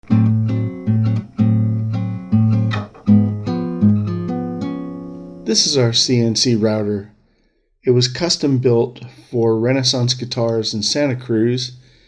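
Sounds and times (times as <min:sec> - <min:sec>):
guitar chords over a low note: 0:00.0 - 0:05.5.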